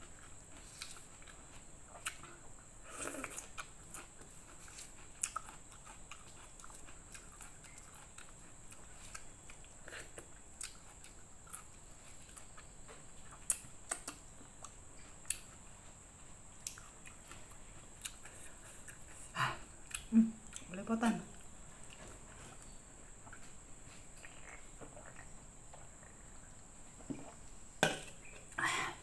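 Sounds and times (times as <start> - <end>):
faint chewing: 0.0 - 27.4
mouth clicks and smacks: 13.5 - 14.2.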